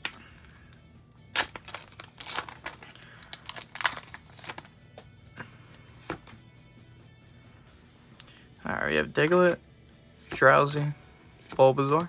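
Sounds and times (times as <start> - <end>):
foil wrapper tearing and crinkling: 1.3 - 4.7.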